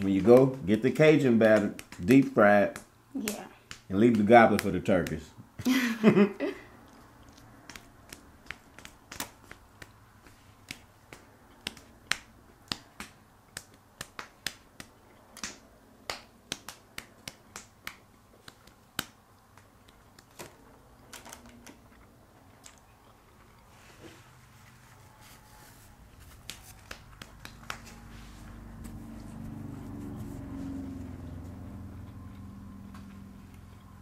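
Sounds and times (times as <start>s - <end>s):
people chewing with lip smacks: 6.7s - 15.6s, 16.6s - 25.0s.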